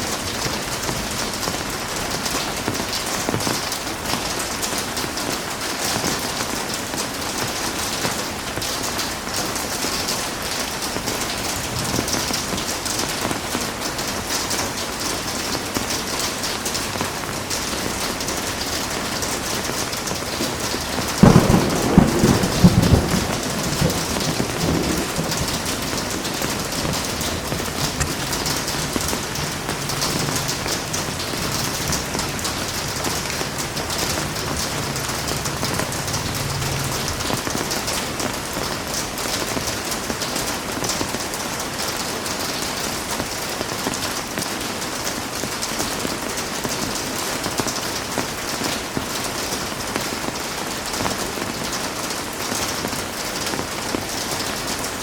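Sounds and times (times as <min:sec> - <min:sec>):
heavy rain hissing: 0:00.0 - 0:55.0
low rumble of thunder: 0:10.2 - 0:13.6, 0:17.9 - 0:40.3
loud thunderclap: 0:10.7 - 0:13.6, 0:17.5 - 0:40.3.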